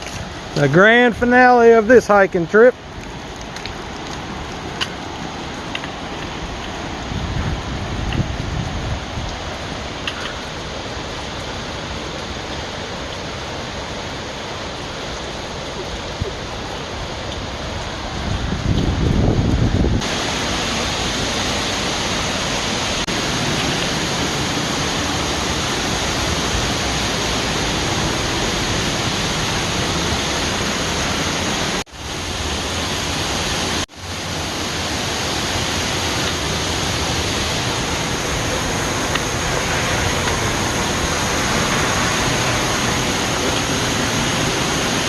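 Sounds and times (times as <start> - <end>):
waterfall rushing roar: 0.0 - 45.0
low rumble: 38.0 - 44.5.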